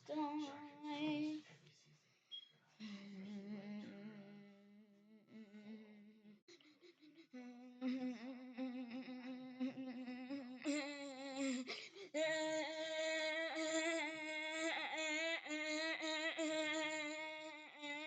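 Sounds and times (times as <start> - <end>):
person humming: 2.9 - 6.4, 7.2 - 18.0.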